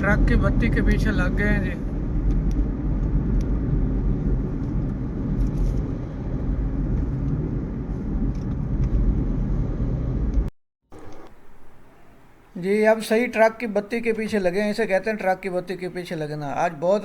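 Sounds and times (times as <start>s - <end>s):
car tyres and engine rumble: 0.0s - 11.4s.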